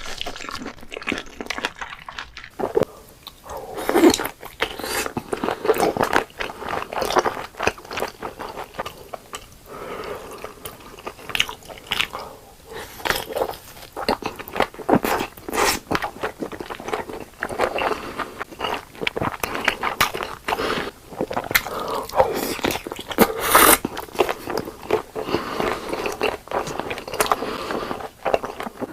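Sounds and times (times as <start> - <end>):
person chewing food: 0.0 - 28.9.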